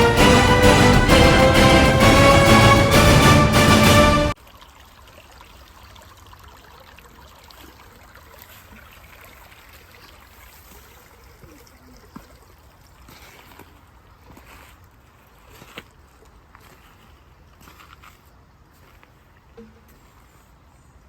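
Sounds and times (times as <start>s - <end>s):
stream running water: 4.3s - 21.0s.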